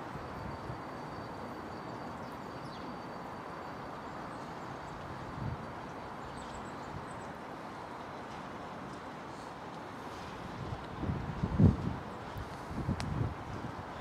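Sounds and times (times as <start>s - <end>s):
freight train rumbling: 0.0s - 14.0s.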